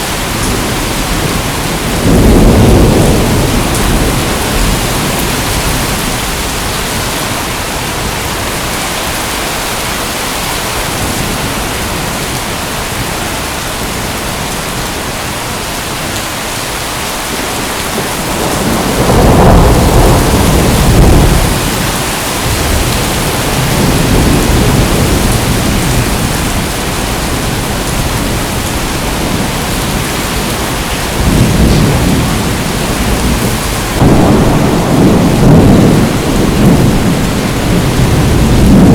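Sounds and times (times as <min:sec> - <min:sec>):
rolling thunder: 0:00.0 - 0:08.8, 0:17.4 - 0:38.9
heavy rain hissing: 0:00.0 - 0:38.9.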